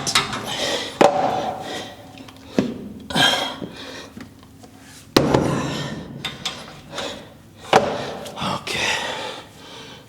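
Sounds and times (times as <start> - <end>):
gym equipment metal clanks: 0.0 - 1.6.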